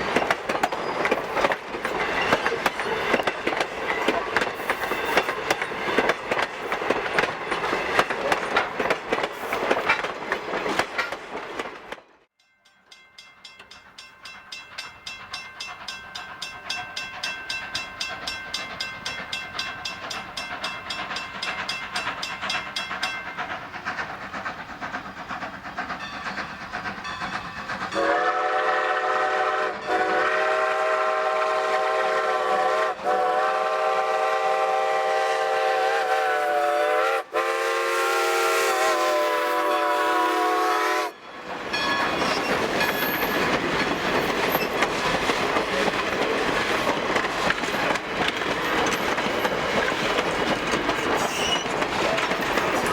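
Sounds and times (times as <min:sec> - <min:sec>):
steam train beat: 0:00.0 - 0:52.9
steam train wheels rattling: 0:00.0 - 0:52.9
steam whistle chord: 0:28.0 - 0:41.2.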